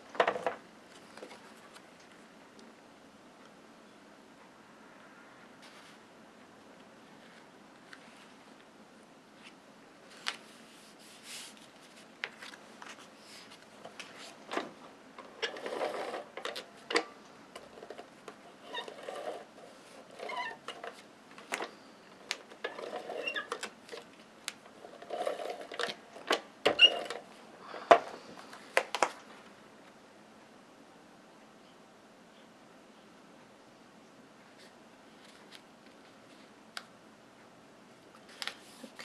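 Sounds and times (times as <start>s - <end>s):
paper rustling and sliding: 5.6s - 6.1s, 7.0s - 8.7s, 9.4s - 14.7s, 38.2s - 39.0s.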